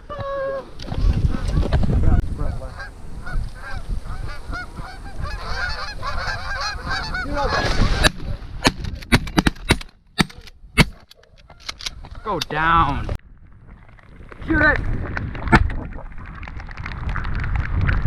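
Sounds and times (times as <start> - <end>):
wind rumble on microphone: 0.0 - 9.2, 12.8 - 18.0
geese honking: 2.4 - 8.1.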